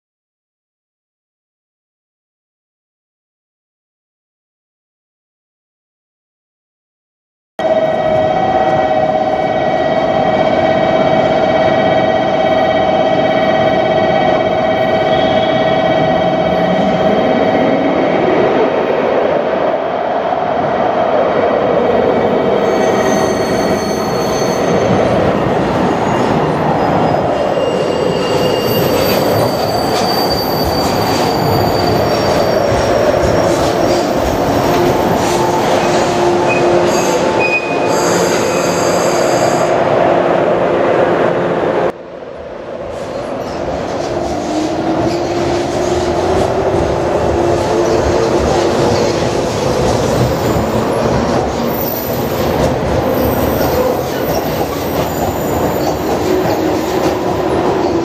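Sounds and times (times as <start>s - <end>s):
electric train whine: 7.6s - 18.8s
passing train: 7.6s - 58.0s
train wheels rumbling: 42.8s - 58.0s.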